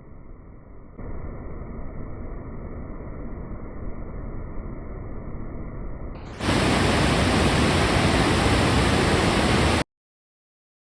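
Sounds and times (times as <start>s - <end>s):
loud steady rushing noise: 6.3s - 9.8s.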